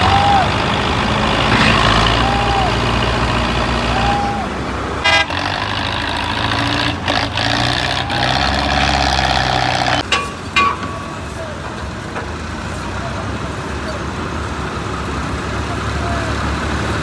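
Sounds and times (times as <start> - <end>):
heavy vehicle engine rumbling: 0.0 - 17.0
horn toots: 5.0 - 10.0.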